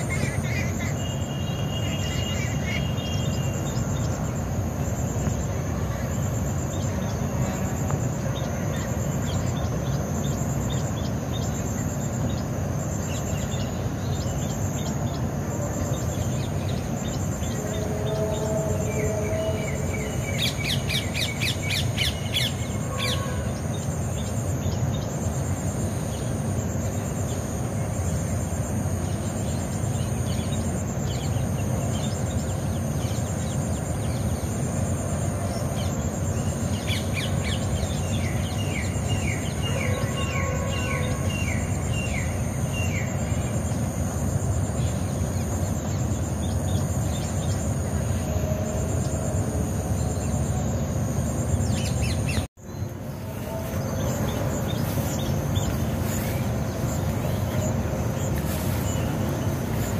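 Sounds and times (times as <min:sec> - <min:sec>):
low outdoor rumble: 0:02.9 - 0:59.9
birds calling: 0:49.9 - 0:59.9.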